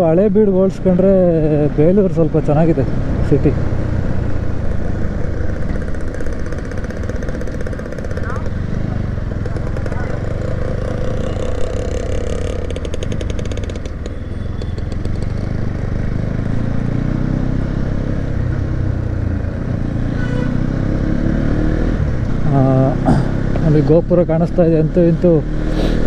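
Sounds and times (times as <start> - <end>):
motorcycle engine running: 0.8 - 26.0
rapid rattling: 4.0 - 16.3.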